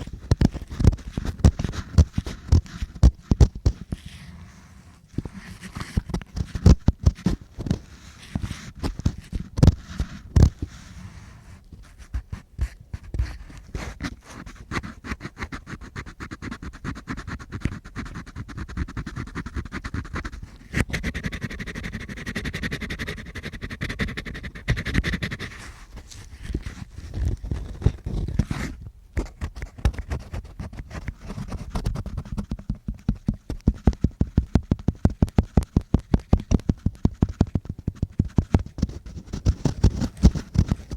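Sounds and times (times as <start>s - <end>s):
regular taps: 31.0s - 40.9s.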